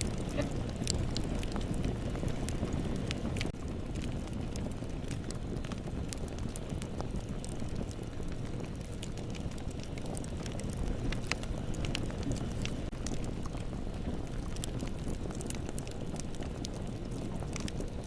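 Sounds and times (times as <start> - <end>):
burning wood crackling and popping: 0.0 - 18.0
rumble of flames: 0.0 - 18.0.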